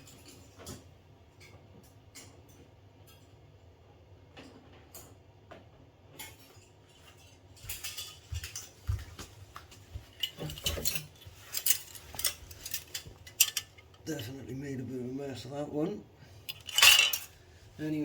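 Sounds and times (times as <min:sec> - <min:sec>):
metal clinking and rattling: 0:00.0 - 0:03.3, 0:06.1 - 0:14.0, 0:16.5 - 0:17.4.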